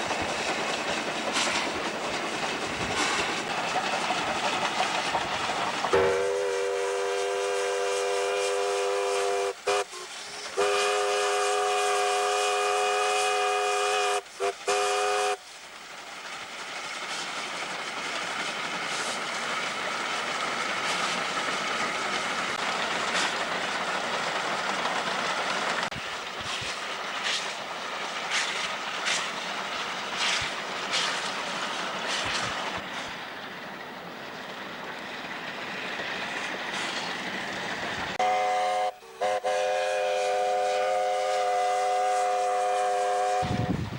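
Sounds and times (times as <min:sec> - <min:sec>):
train running noise: 0:00.0 - 0:43.9
steam locomotive chime whistle: 0:05.9 - 0:15.5, 0:38.2 - 0:43.8.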